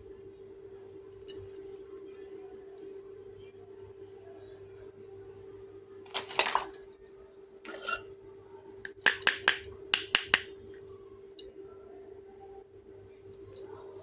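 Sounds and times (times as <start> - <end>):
toy pieces rustling: 6.1 - 6.8
toy pieces clicking and clinking: 8.9 - 10.5.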